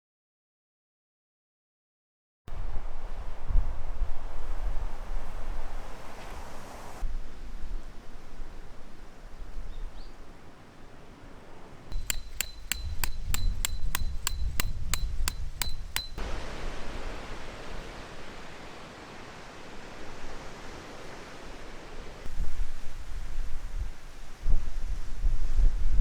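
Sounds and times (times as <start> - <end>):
gusty wind: 2.5 - 26.0
metal object struck ringing: 11.9 - 16.2.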